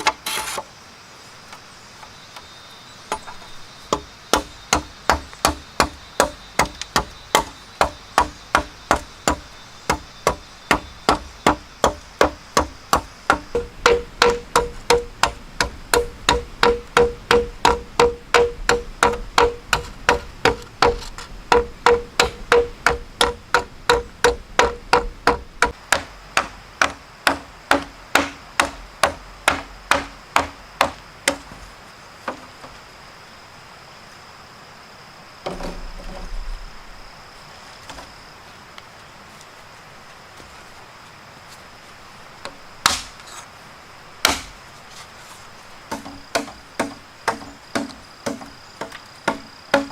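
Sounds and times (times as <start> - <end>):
tool striking wood: 3.1 - 31.6, 42.8 - 43.2, 44.2 - 44.6, 45.9 - 49.9
rustling scrape: 44.8 - 45.7.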